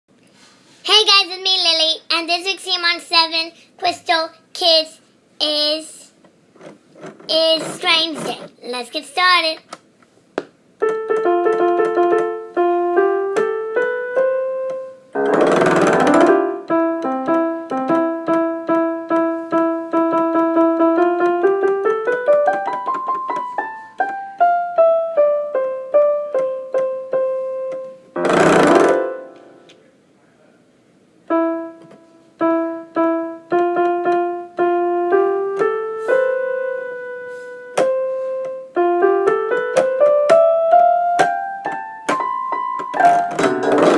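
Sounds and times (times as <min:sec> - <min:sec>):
piano-toned keyboard melody: 0:10.8 - 0:29.8, 0:31.2 - 0:43.9.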